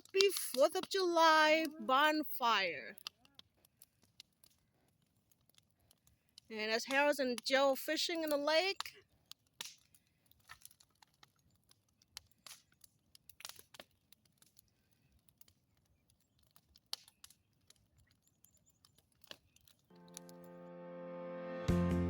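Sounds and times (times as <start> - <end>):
faint clicks and crackles: 0.0 - 20.5
soft music: 19.9 - 22.0.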